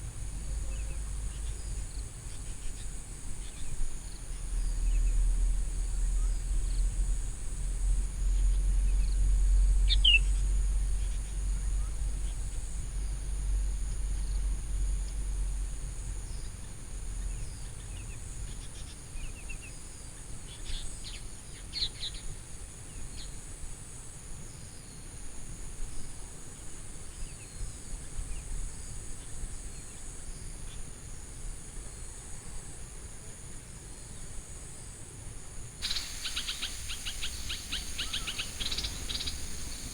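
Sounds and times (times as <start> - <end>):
bird chirps: 9.9 - 10.2, 35.8 - 39.9
insects buzzing: 35.8 - 39.9.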